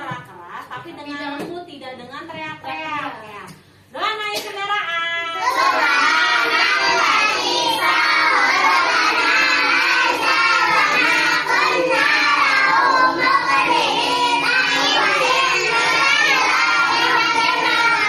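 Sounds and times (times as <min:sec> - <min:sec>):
children chanting a prayer: 0:05.3 - 0:18.0.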